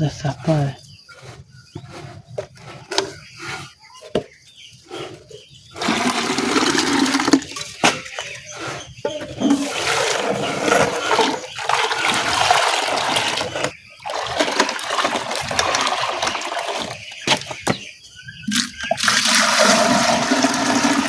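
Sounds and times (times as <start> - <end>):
water pouring into container: 5.8 - 8.1, 9.4 - 17.5, 18.5 - 21.0.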